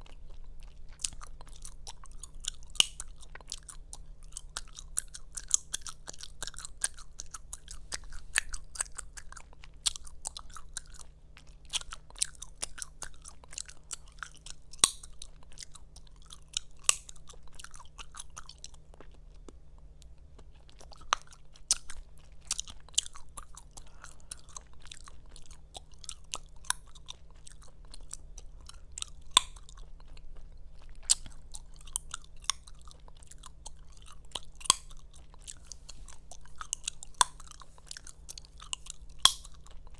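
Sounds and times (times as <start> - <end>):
gum chewing smacks: 0.0 - 39.9.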